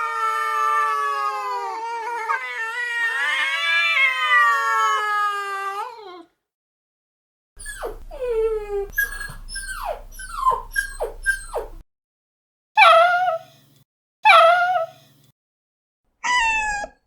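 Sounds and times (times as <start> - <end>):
dog whimpering and whining: 0.5 - 6.3, 7.6 - 11.8, 12.8 - 13.6, 14.2 - 15.0, 16.2 - 17.0.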